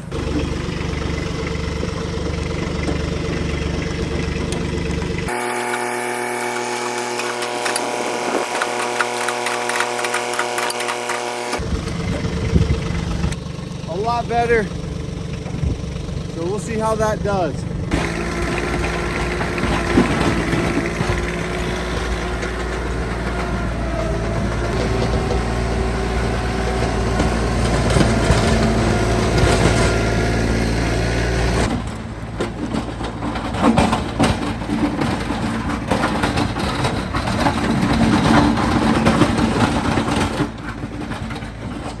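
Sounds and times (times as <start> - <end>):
engine knocking: 0.0 - 42.0
vehicle engine running: 0.0 - 42.0.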